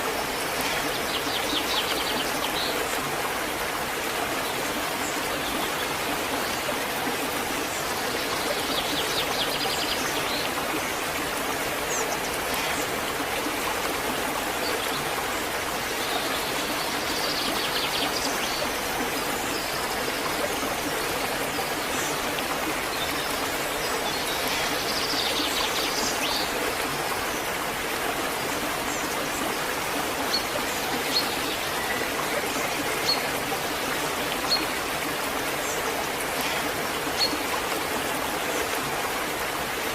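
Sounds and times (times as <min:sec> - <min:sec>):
waterfall rushing and splashing: 0:00.0 - 0:39.9.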